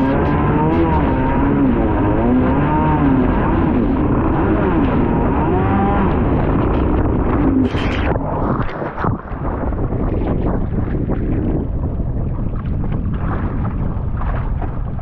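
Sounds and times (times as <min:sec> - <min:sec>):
jet ski engine running hard: 0:00.0 - 0:07.7
rush of noise: 0:00.0 - 0:15.0.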